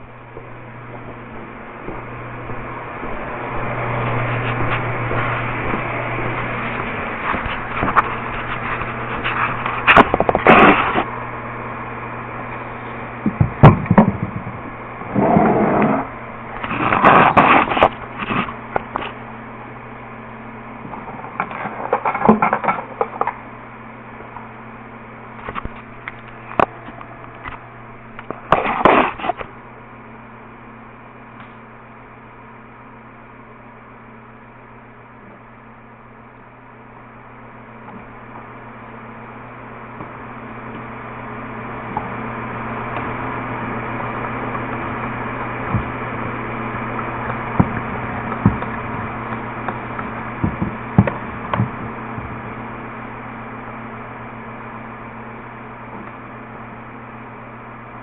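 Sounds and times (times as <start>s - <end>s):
steady electrical hum: 0.0s - 58.0s.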